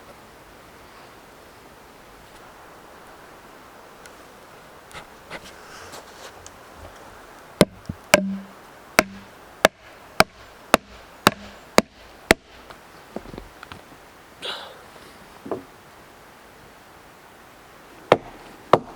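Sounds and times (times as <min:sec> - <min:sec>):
hatchet chopping wood: 0:07.6 - 0:12.6, 0:18.1 - 0:18.9.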